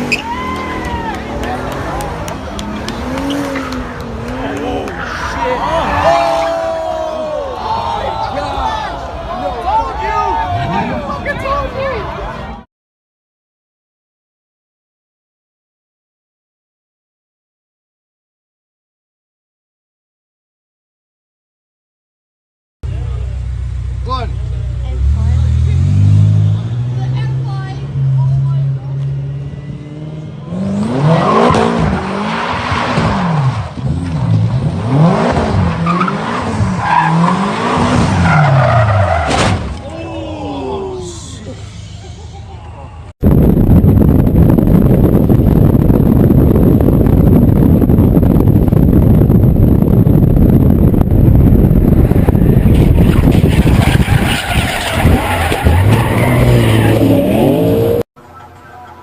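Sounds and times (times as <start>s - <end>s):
car engine revving: 0.0s - 6.5s, 23.2s - 39.3s, 44.3s - 58.1s
rumbling road noise: 0.0s - 12.6s, 22.8s - 59.0s
tyres skidding and squealing: 0.0s - 12.6s, 24.2s - 43.1s, 51.8s - 59.0s.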